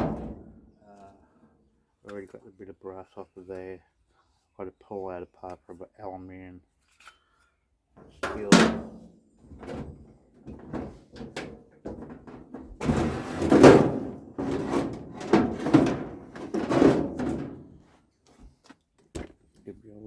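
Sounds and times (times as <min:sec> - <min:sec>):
metal parts knocking and rattling: 0:09.6 - 0:17.8.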